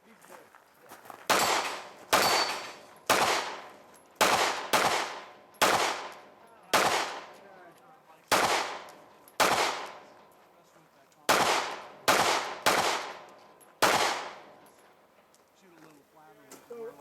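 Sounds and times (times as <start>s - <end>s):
gunshots with echo: 1.3s - 7.4s, 8.3s - 10.2s, 11.3s - 14.6s.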